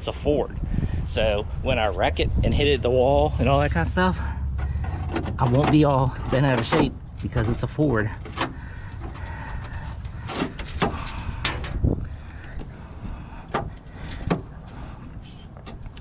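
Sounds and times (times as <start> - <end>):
hand tool scraping metal: 4.6 - 11.8.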